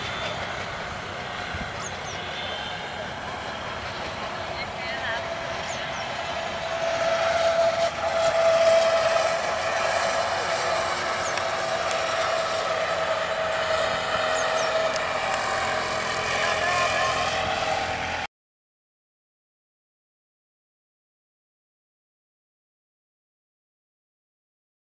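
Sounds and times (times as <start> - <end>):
distant train droning with whine: 0.0 - 18.3.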